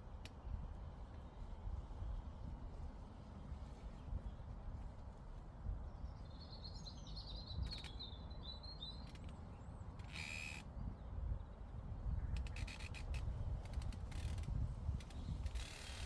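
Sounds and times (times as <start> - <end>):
wind on microphone: 13.2 - 15.6.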